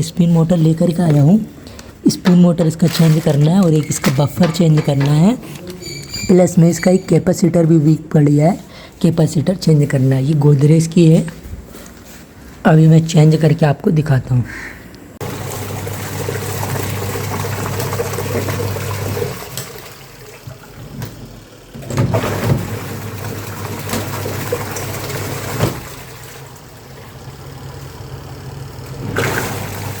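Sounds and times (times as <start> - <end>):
washing machine motor humming: 15.2 - 30.0
water churning: 15.2 - 30.0.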